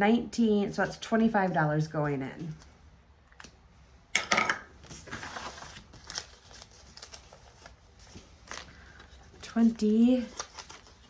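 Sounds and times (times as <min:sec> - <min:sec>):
paper bills rustling: 0:04.8 - 0:11.0
paper sliding: 0:04.9 - 0:07.6.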